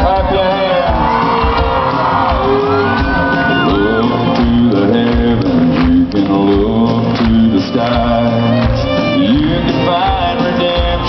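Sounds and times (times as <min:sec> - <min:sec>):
crowd shouting: 0:00.0 - 0:04.5
live country band playing: 0:00.0 - 0:11.0
person singing: 0:00.0 - 0:11.0
high whoop: 0:01.0 - 0:04.1.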